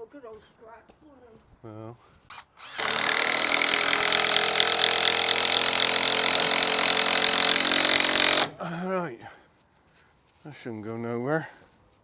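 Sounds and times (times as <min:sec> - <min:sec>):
drill driving screw into timber: 0:02.3 - 0:08.6.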